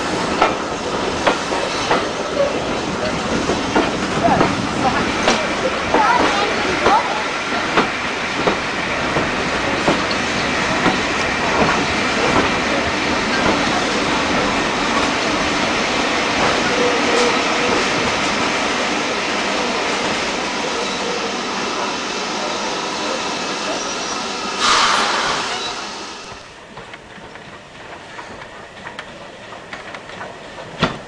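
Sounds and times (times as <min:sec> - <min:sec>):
train rumbling: 0:00.0 - 0:31.0
wheels clicking over rail joints: 0:26.7 - 0:31.0.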